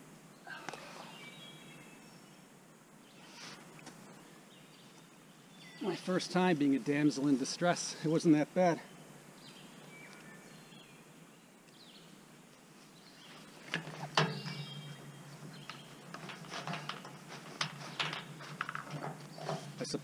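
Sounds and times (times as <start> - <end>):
birds chirping faintly: 0.0 - 20.0
rustling: 12.5 - 20.0
close clicks and knocks: 13.7 - 19.6.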